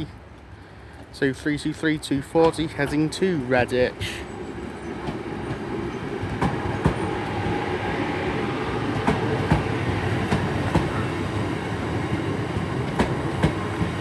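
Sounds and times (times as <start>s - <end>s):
train wheels rumbling on rails: 1.6s - 14.0s
wheels clicking over rail joints: 2.1s - 7.5s.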